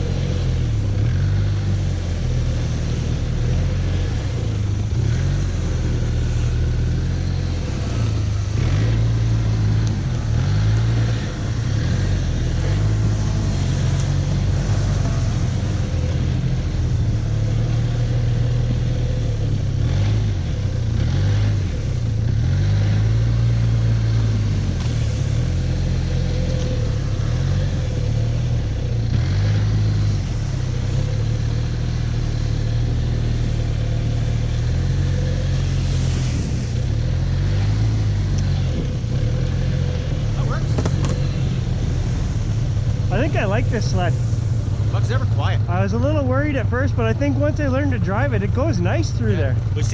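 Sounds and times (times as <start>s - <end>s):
snowmobile engine under load: 0.0s - 49.9s.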